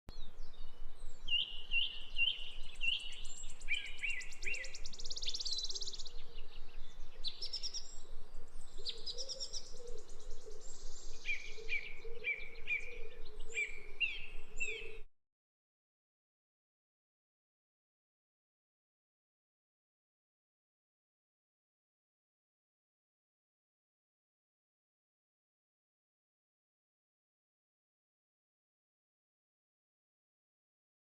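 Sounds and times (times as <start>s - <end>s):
songbird chirping: 0.1s - 15.1s.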